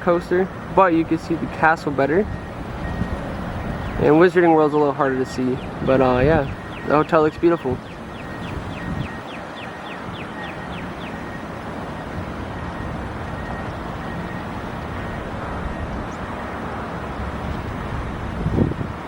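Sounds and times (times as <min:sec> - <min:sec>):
distant vehicle noise: 0:00.0 - 0:19.0
wind buffeting microphone: 0:00.5 - 0:19.0.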